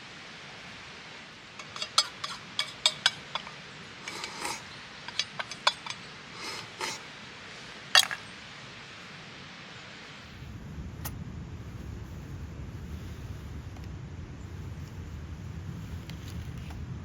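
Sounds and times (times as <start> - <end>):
steady background hiss: 0.0 - 17.0
small hard objects clinking: 1.6 - 7.0, 8.0 - 8.3
short scrapes: 1.6 - 7.1.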